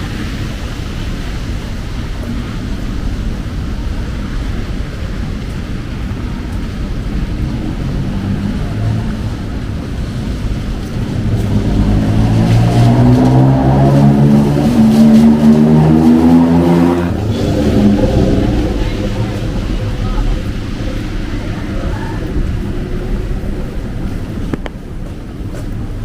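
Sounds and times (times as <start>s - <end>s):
heavy rain on street: 0.0s - 26.0s
vehicle engine revving: 7.3s - 21.8s.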